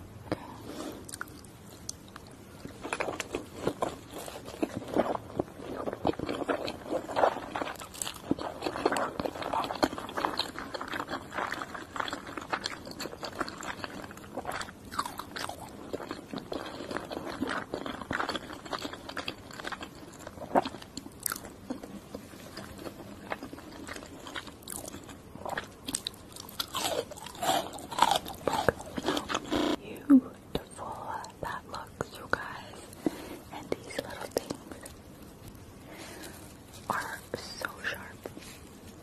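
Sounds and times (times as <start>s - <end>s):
wet chewing sounds: 1.0s - 29.8s.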